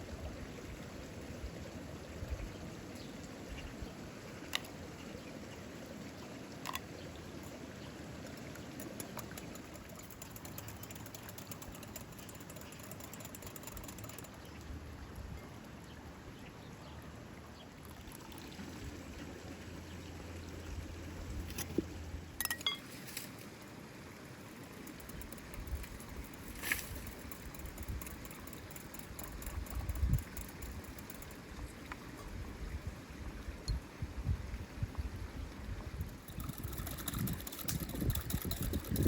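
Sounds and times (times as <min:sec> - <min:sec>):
water trickling: 0:00.1 - 0:39.0
sharp clicks: 0:24.7 - 0:31.5.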